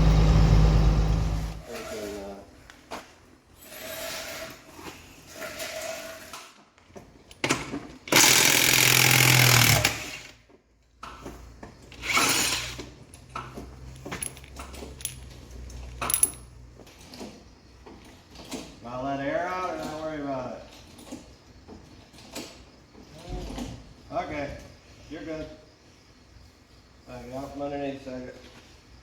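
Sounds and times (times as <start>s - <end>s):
power tool running: 0.0s - 1.6s, 8.1s - 10.4s, 12.0s - 12.8s
metal clicks and clanks: 13.2s - 17.3s.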